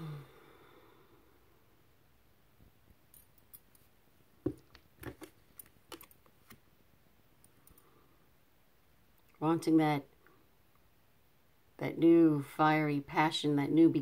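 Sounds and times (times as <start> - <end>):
cards clicking and tapping on table: 4.4 - 6.6.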